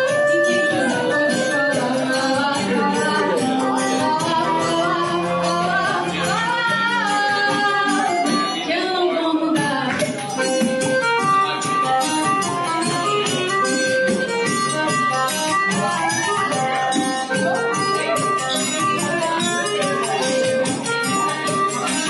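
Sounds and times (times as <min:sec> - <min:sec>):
lead singer: 0:00.0 - 0:10.1
live band playing: 0:00.0 - 0:22.0.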